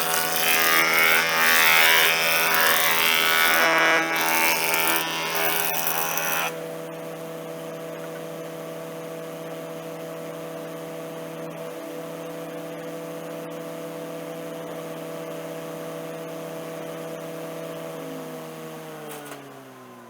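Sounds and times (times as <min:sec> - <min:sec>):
planer humming with no load: 0:00.0 - 0:06.7
surface planer cutting wood: 0:00.0 - 0:06.7.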